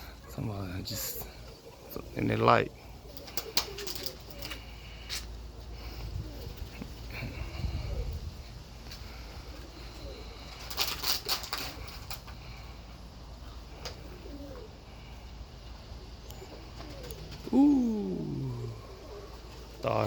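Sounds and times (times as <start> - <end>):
pigeons cooing: 0.0 - 20.0
wind rumbling on microphone: 5.9 - 9.5.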